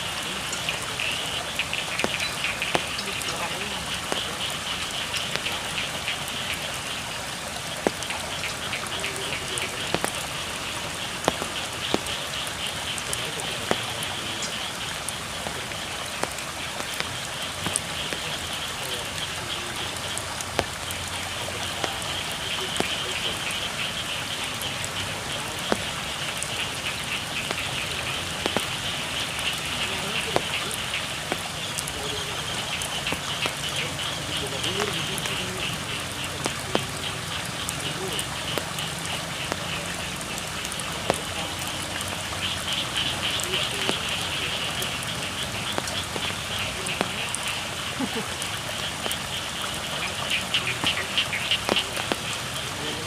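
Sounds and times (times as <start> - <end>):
water drops tapping sharply: 0.0 - 52.6
frogs croaking: 0.0 - 53.0
rain pattering on a field: 0.0 - 53.0.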